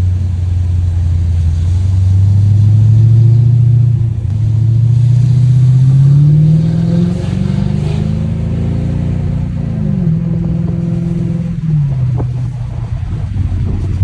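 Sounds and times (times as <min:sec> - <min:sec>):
straight-piped car engine revving: 0:00.0 - 0:14.0.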